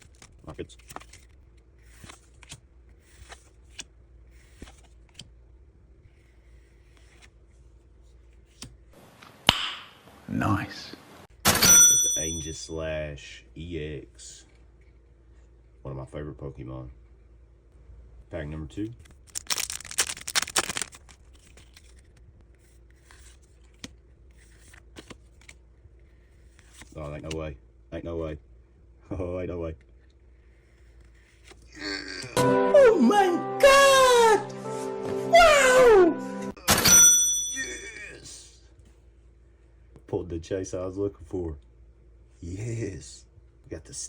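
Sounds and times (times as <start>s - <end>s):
cards rubbing and scraping: 0.0s - 5.3s, 6.0s - 8.8s, 19.0s - 27.0s, 30.5s - 31.7s
sharp card snap: 9.4s - 10.0s
trading cards swishing: 19.3s - 22.0s.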